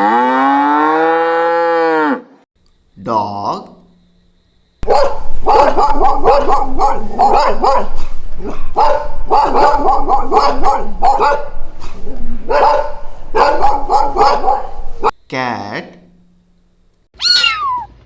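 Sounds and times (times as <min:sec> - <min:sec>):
dog barking: 0:04.8 - 0:15.1.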